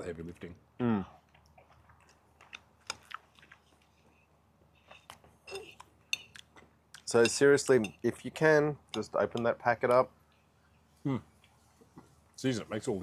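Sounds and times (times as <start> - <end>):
person chewing: 1.1 - 4.2.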